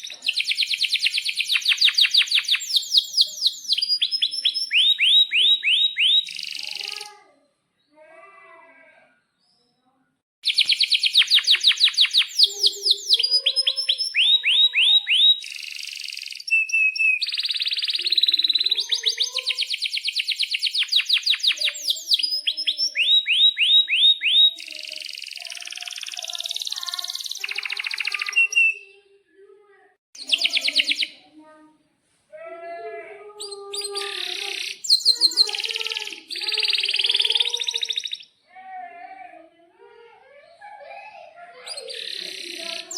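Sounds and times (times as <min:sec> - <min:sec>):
canary singing trills: 0:00.0 - 0:07.2, 0:10.4 - 0:29.2, 0:30.2 - 0:31.4, 0:33.4 - 0:38.5, 0:41.6 - 0:42.9.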